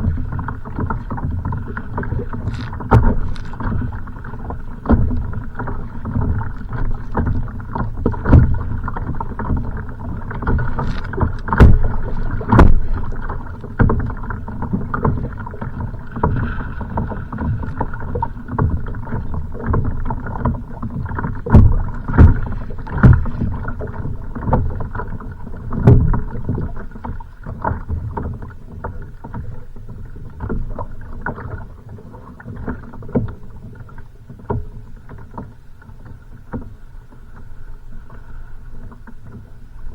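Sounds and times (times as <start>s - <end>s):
louder thumps on hull: 0.0s - 29.5s
waves slapping against kayak hull: 0.0s - 39.9s.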